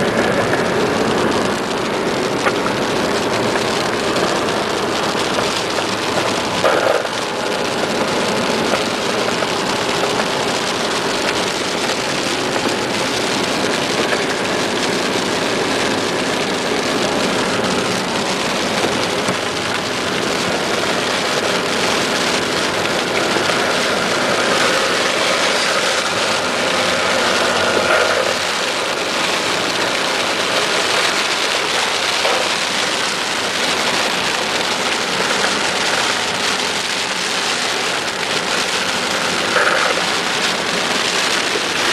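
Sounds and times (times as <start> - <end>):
heavy rain falling: 0.0 - 41.9
vehicle engines running: 0.0 - 41.9.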